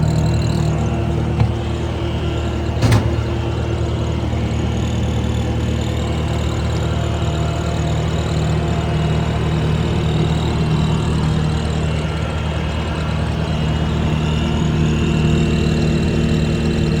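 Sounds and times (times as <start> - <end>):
diesel engine running: 0.7 - 4.0.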